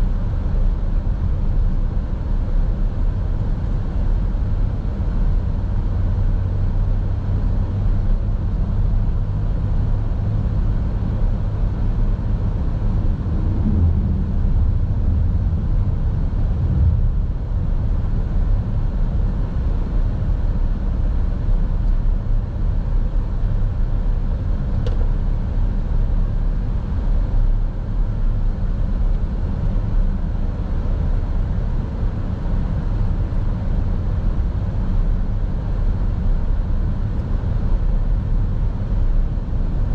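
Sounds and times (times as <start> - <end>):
car road and engine rumble: 0.0 - 39.9
faint click: 24.8 - 25.1.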